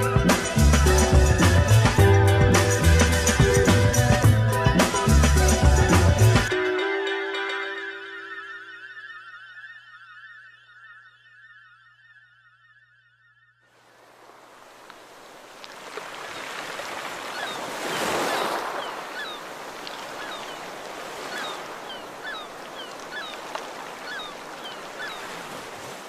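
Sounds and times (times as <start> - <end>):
surf washing: 13.8 - 26.0
small bird chirping: 17.3 - 20.7, 21.3 - 25.3.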